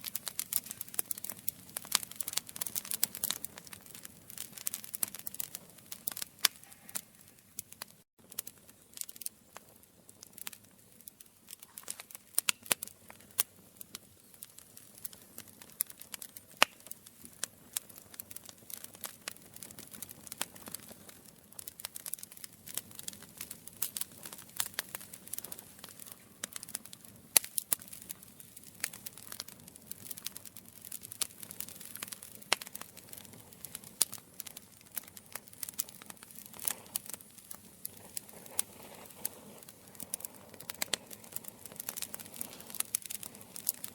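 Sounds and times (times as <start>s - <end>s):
campfire crackling: 0.0s - 43.9s
faint hiss: 36.6s - 43.8s.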